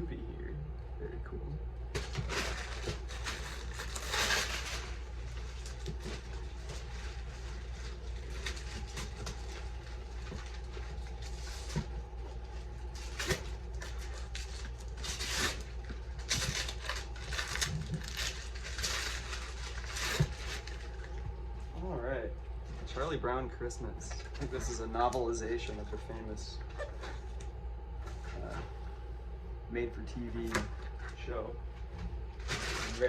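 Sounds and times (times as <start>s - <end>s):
steady low hum: 0.0s - 33.0s
wrapping paper rustling: 2.0s - 21.3s, 32.3s - 33.0s.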